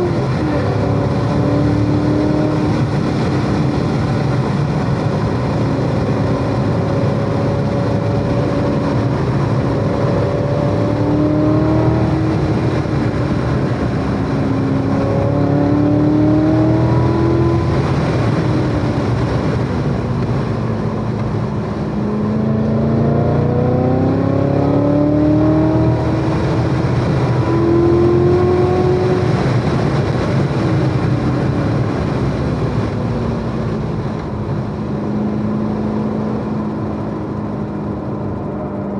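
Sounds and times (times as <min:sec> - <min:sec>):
race car engine accelerating: 0:00.0 - 0:19.7, 0:20.8 - 0:32.2.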